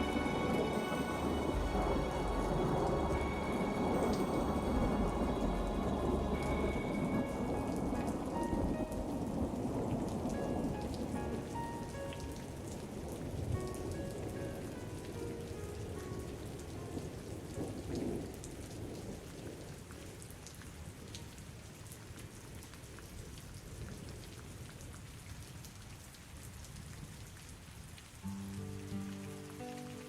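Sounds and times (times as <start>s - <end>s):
distant thunder rumble: 0.0s - 15.4s
faint musical notes: 0.0s - 17.7s
steady rain falling: 0.0s - 30.0s.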